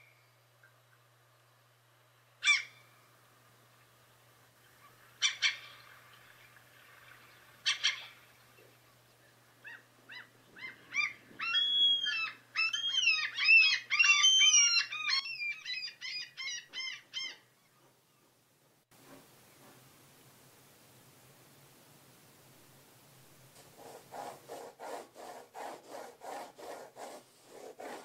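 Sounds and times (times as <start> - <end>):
birds chattering: 3.8 - 17.9.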